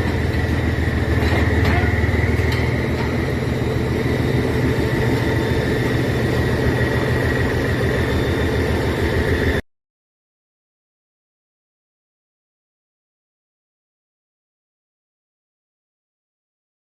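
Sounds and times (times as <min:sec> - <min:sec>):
high whine: 0:00.0 - 0:09.6
large engine rumbling: 0:00.0 - 0:09.6.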